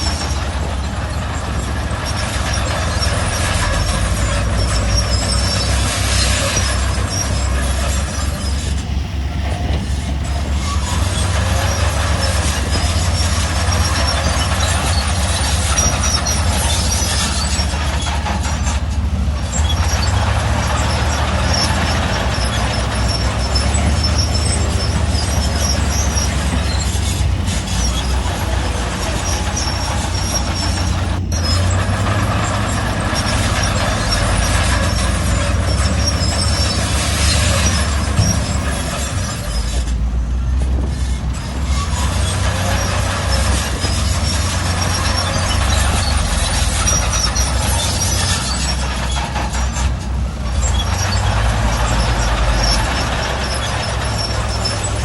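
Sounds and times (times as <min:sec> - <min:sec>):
low diesel engine drone: 0:00.0 - 0:55.0
metallic track squealing and clanking: 0:00.0 - 0:55.0.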